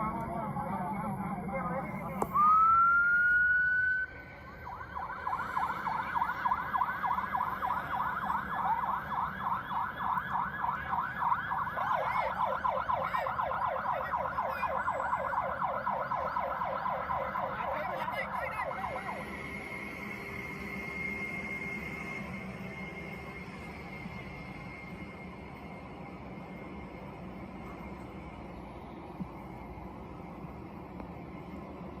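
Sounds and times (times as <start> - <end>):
siren yelping: 0.0 - 22.2.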